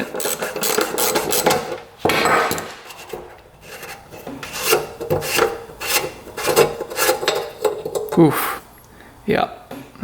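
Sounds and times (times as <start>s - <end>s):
scraping small metal part: 0.0s - 1.7s, 2.4s - 8.3s.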